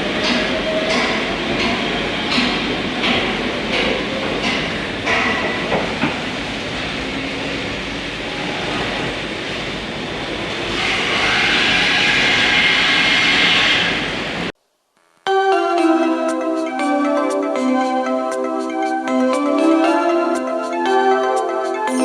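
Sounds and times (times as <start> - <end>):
train rumbling on rails: 0.0 - 14.5.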